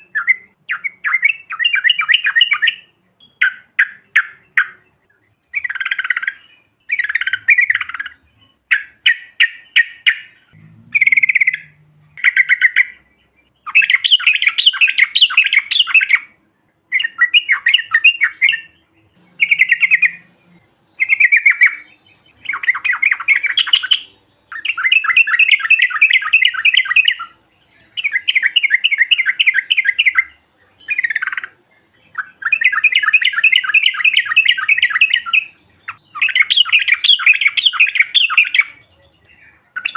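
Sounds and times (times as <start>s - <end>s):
bird chattering calls: 5.6s - 16.2s, 19.2s - 20.4s.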